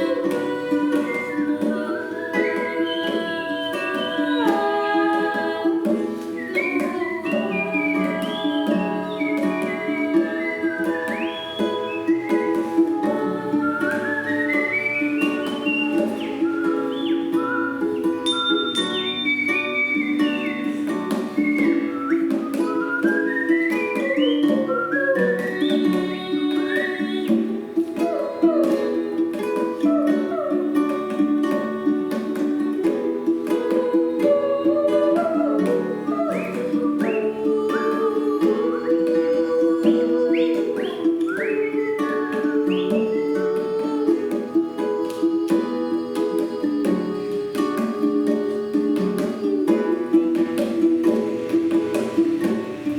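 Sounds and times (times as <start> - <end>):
guitar playing plucked notes: 0.0 - 52.9
person whistling melody: 0.0 - 52.9
guitar plucked in quick notes: 49.6 - 52.9.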